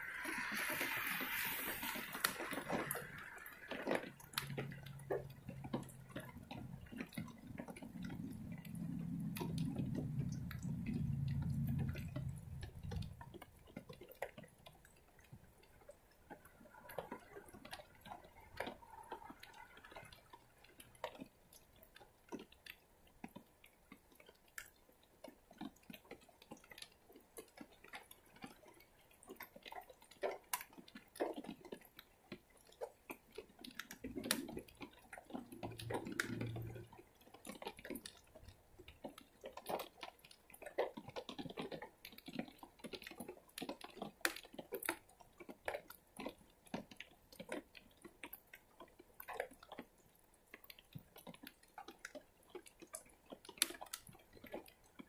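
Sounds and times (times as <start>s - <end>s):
faint rain hiss: 0.0s - 13.6s
raindrops tapping: 0.0s - 55.0s.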